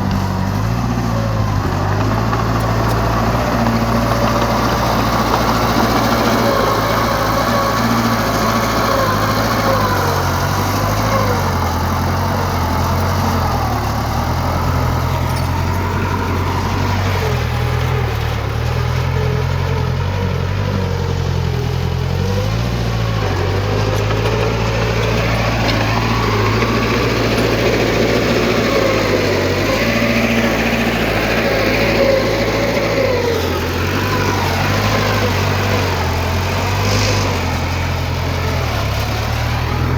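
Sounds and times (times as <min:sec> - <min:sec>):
diesel engine under load: 0:00.0 - 0:39.9.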